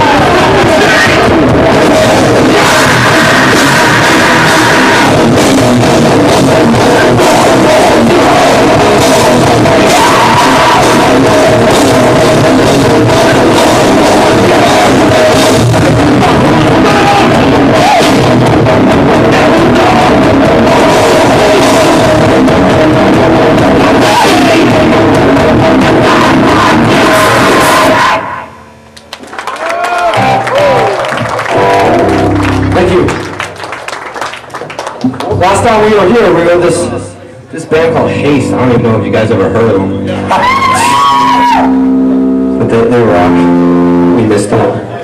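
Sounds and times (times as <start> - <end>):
shouted vocals: 0.0 - 5.4, 6.5 - 18.4, 19.0 - 22.3, 23.5 - 28.6, 29.6 - 33.2, 40.0 - 41.9
fast drums: 0.0 - 28.0
distorted guitars: 0.0 - 29.2, 30.0 - 45.0
bass guitar: 0.0 - 45.0.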